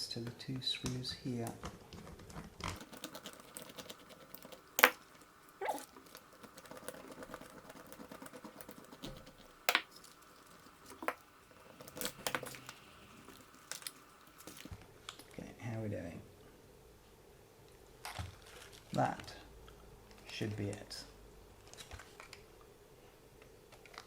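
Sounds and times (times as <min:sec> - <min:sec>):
small parts clicking and tapping: 0:02.6 - 0:14.7.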